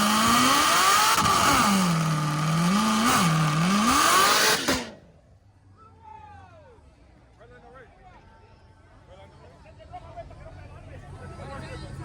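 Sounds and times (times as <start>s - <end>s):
car engine revving: 0.0s - 5.1s.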